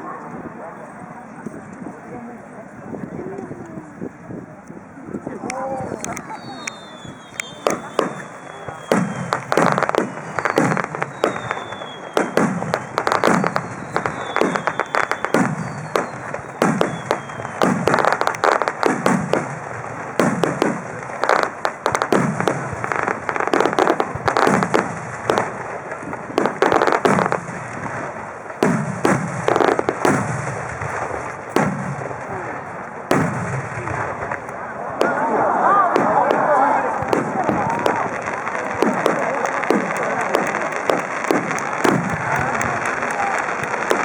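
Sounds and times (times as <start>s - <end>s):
fireworks shells bursting: 6.0s - 35.3s, 35.9s - 44.0s
faint falling whistles: 6.2s - 17.6s.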